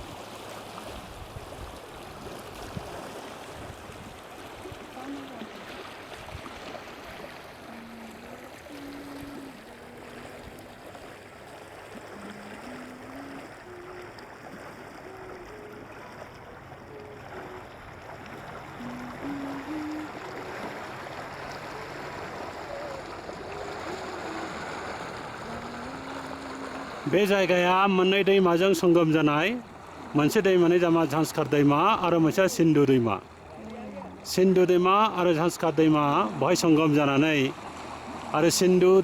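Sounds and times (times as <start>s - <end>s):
fast river rushing: 0.0s - 39.0s
faint melody of held notes: 7.6s - 14.3s, 15.0s - 27.3s.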